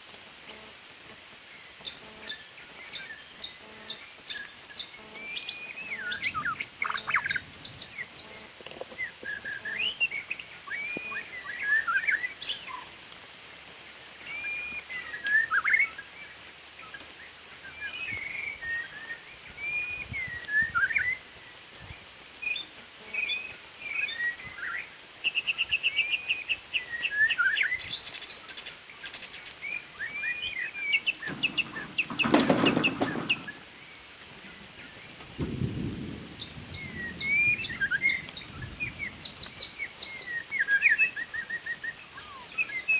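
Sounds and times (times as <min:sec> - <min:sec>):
bird singing whistled phrases: 0:05.2 - 0:12.9, 0:14.3 - 0:16.0, 0:17.7 - 0:21.2, 0:22.4 - 0:32.0, 0:36.7 - 0:42.9
wing flapping: 0:31.0 - 0:33.7.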